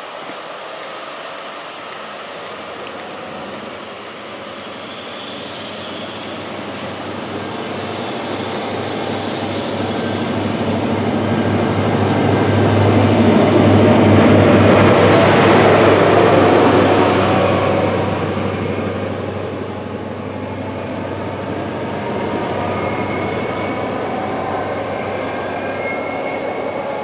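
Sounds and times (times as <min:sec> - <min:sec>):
train wheels rumbling on rails: 0:00.0 - 0:27.0
high wheel squeals: 0:04.4 - 0:11.5, 0:22.5 - 0:26.8
deep diesel engine drone: 0:05.5 - 0:24.8.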